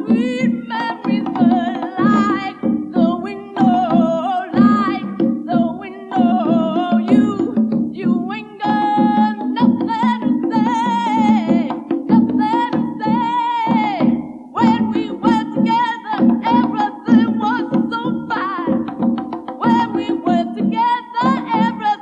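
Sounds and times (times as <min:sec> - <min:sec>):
woman singing: 0:00.0 - 0:22.0
band bass and percussion: 0:06.3 - 0:08.2.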